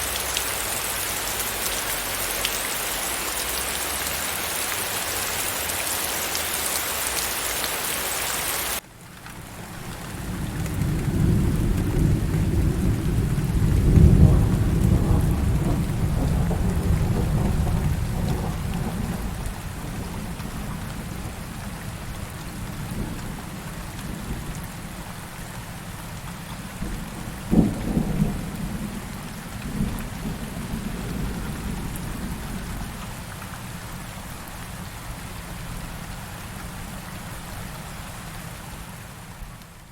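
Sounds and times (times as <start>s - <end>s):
heavy rain hissing: 0.0s - 8.8s
deep roll of thunder: 9.9s - 21.4s, 26.8s - 32.9s.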